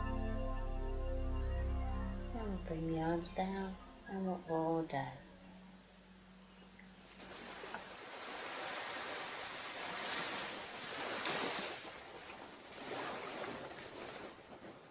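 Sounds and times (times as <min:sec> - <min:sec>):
ocean surf on a beach: 0:07.4 - 0:14.2.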